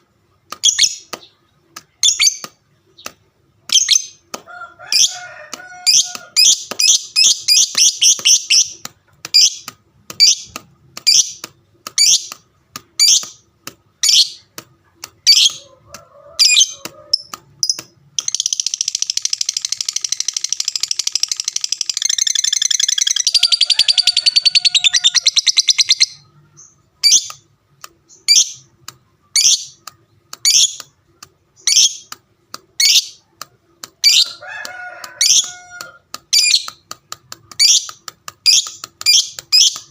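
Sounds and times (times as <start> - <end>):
bird chattering trill: 16.4 - 27.4, 35.2 - 36.8.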